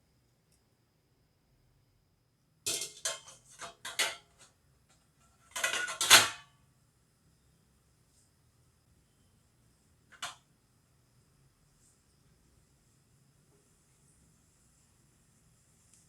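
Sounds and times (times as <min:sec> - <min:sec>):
utensils clattering against dishes: 0:02.7 - 0:04.5, 0:05.5 - 0:06.4.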